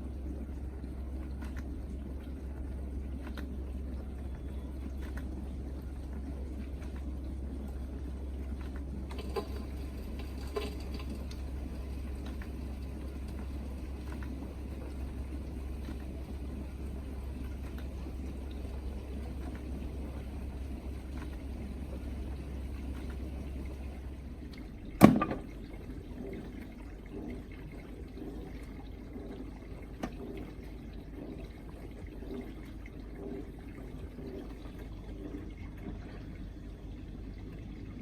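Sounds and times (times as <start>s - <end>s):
dishwasher pump hum: 0.0s - 38.0s
water spraying inside dishwasher: 8.6s - 24.1s.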